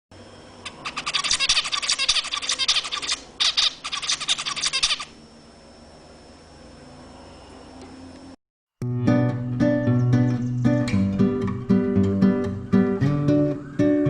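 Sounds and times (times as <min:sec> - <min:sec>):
finch singing rapid notes: 0:00.6 - 0:05.1.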